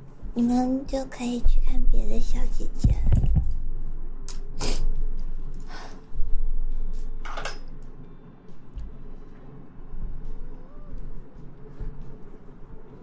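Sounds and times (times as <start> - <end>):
microphone handling thumps: 2.8 - 3.5.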